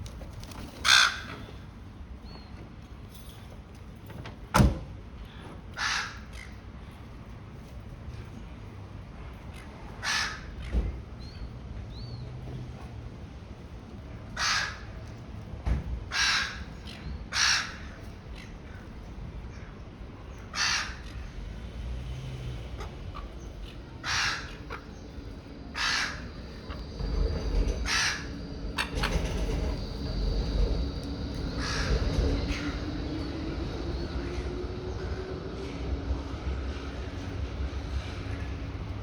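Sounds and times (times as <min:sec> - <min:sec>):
low outdoor rumble: 0:00.0 - 0:39.0
bird cawing harshly: 0:00.8 - 0:01.6, 0:05.8 - 0:06.5, 0:10.0 - 0:10.6, 0:16.1 - 0:18.0, 0:20.5 - 0:21.3, 0:22.8 - 0:27.0, 0:27.6 - 0:29.1, 0:31.5 - 0:32.8.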